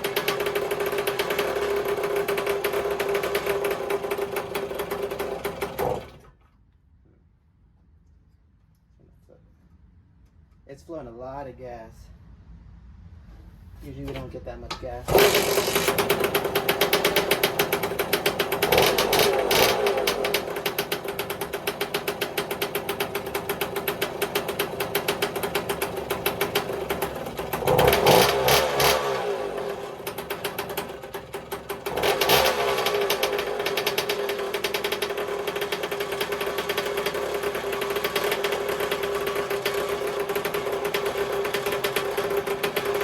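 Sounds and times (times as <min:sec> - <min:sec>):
two-stroke motorcycle engine revving: 0:00.0 - 0:06.2, 0:15.0 - 0:43.0.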